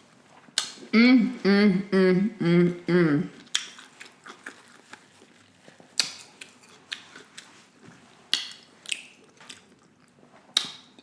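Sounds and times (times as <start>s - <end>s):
wet chewing mouth clicks: 3.4s - 7.6s, 8.3s - 11.0s.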